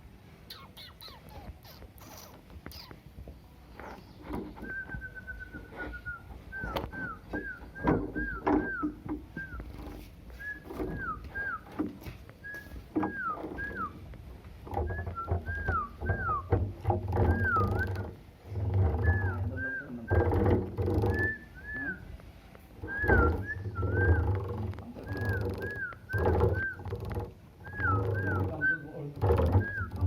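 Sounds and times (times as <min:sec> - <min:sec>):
bird chirping: 0:00.5 - 0:03.1, 0:03.7 - 0:14.0, 0:22.8 - 0:30.0.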